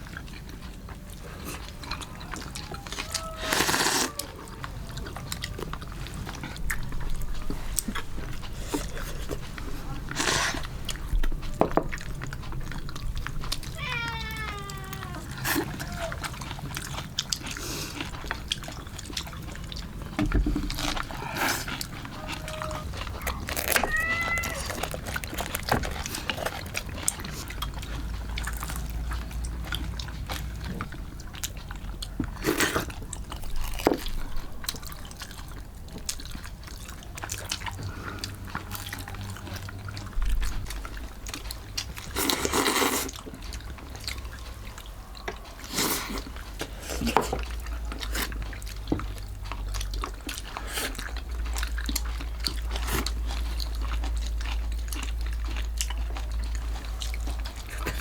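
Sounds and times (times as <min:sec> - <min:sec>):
scraping or rustling: 0:20.4 - 0:27.5.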